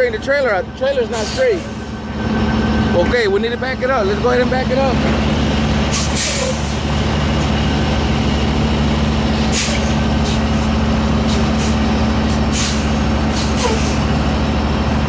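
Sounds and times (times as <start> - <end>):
diesel truck engine running: 0.0 - 15.0
air brake hisses: 1.2 - 2.0, 5.9 - 6.9, 9.4 - 14.5.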